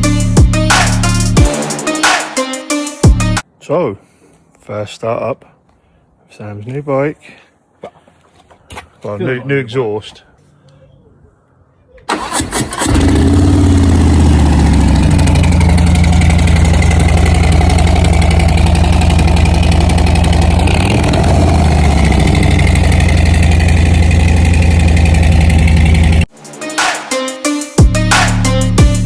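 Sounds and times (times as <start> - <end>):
motorcycle engine revving: 12.1 - 26.3
motorcycle engine idling loudly: 12.8 - 26.3.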